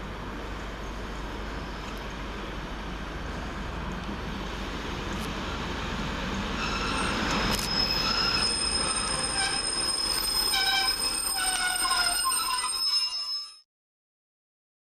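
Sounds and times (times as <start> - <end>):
train rumble: 0.0 - 13.2
wheels and brakes squealing: 6.6 - 13.7.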